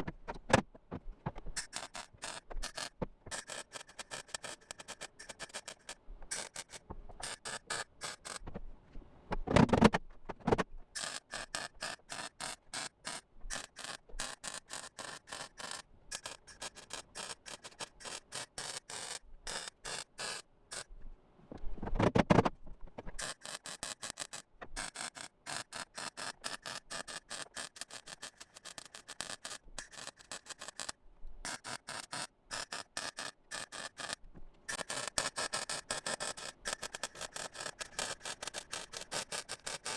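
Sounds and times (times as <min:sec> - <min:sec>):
welder crackling in bursts: 0:01.6 - 0:08.4, 0:11.0 - 0:20.8, 0:23.2 - 0:39.9.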